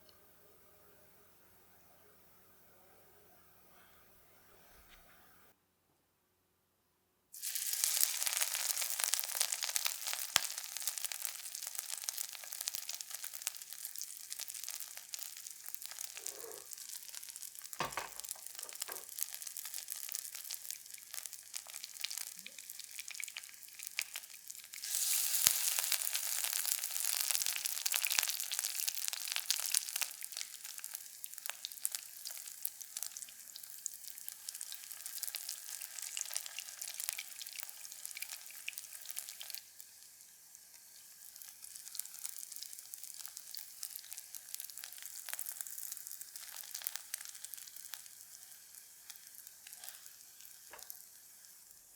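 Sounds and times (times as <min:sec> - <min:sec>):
food sizzling in a pan: 0:07.3 - 0:51.9
oil popping: 0:17.8 - 0:19.2.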